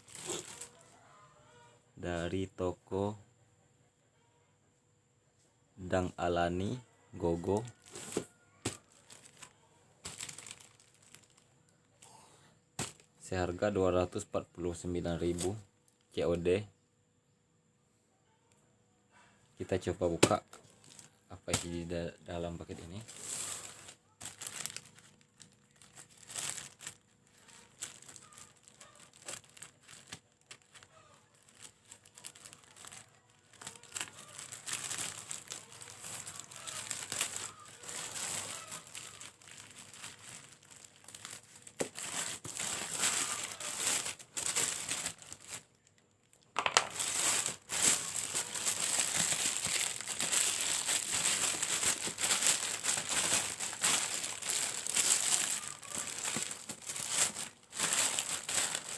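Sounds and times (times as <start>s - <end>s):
packaging crinkling and rustling: 0.0s - 0.8s, 7.4s - 11.8s, 12.8s - 13.3s, 19.7s - 58.9s.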